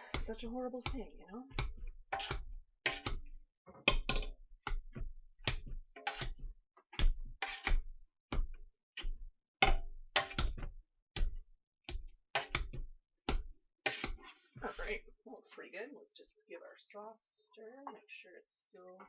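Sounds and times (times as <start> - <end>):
potato masher knocking pot: 0.0 - 14.2.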